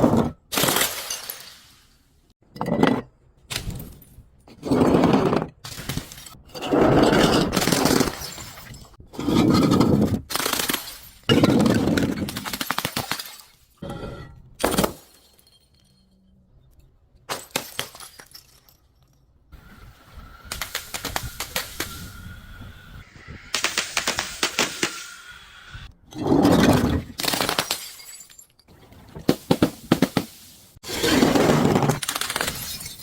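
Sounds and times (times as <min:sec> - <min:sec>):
glass breaking and crunching: 0:00.6 - 0:01.8, 0:07.3 - 0:09.0, 0:26.6 - 0:28.7, 0:31.6 - 0:33.0.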